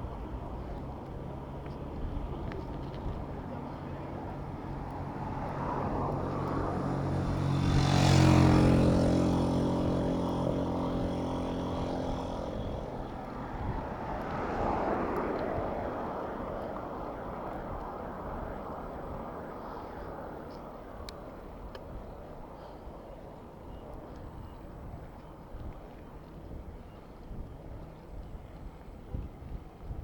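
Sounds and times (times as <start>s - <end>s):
traffic hum: 0.0s - 30.0s
vehicle engine passing: 5.2s - 20.5s.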